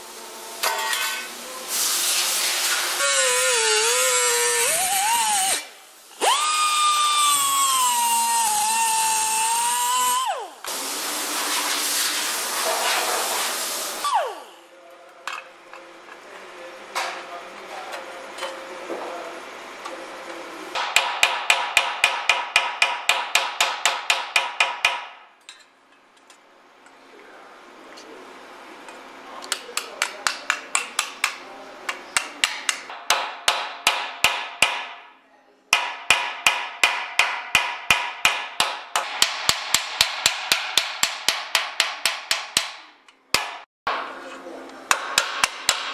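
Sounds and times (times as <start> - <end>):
power tool running: 2.9 - 10.9, 14.0 - 14.7.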